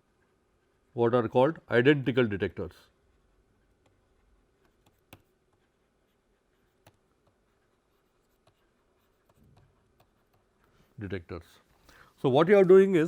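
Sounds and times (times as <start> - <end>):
pen writing and tapping: 4.6 - 5.7, 6.6 - 10.8.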